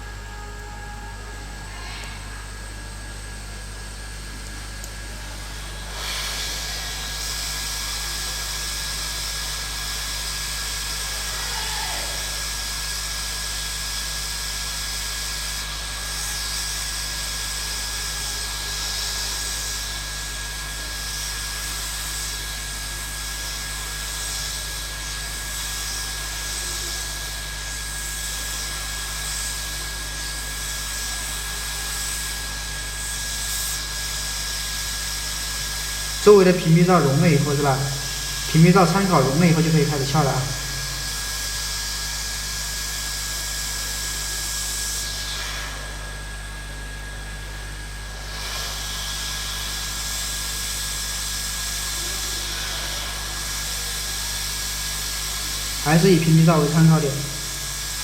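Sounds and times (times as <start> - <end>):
high whine: 0.0 - 4.4, 36.0 - 41.6, 55.8 - 58.0
hot air gun hissing: 5.4 - 46.2, 48.2 - 58.0.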